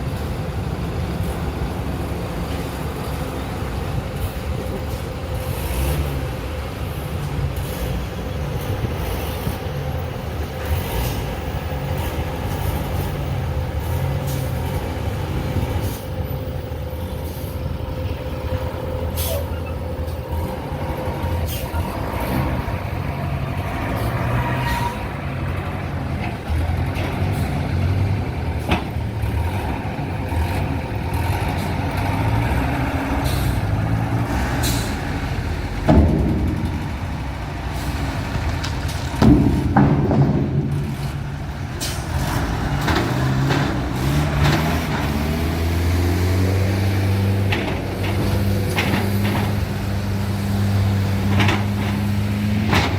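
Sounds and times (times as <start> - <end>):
heavy vehicle engine rumbling: 0.0 - 52.9
sharp clicks and knocks: 47.4 - 49.7, 51.2 - 52.9.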